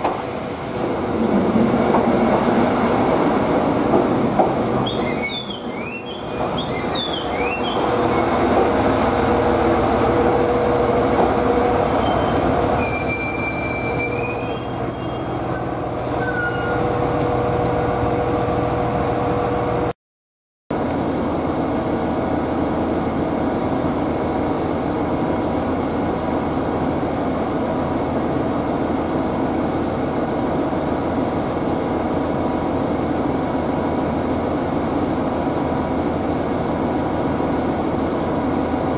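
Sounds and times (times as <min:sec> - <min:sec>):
railcar engine and wheels rumbling: 0:00.0 - 0:19.9, 0:20.7 - 0:38.9
train approaching: 0:00.0 - 0:19.9.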